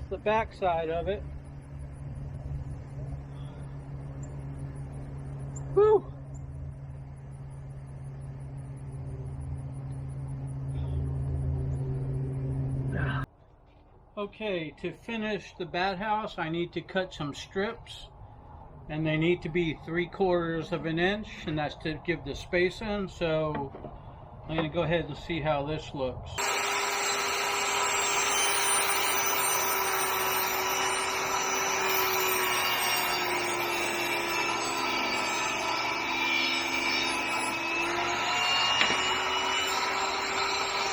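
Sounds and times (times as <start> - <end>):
engine running steadily: 0.0 - 13.3, 26.2 - 40.9.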